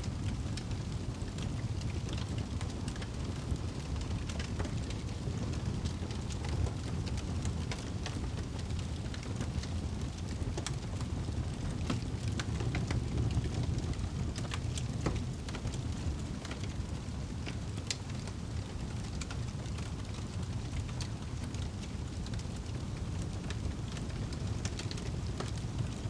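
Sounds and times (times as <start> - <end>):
low rumble of flames: 0.0 - 26.0
sharp crackles and pops of fire: 0.0 - 26.0.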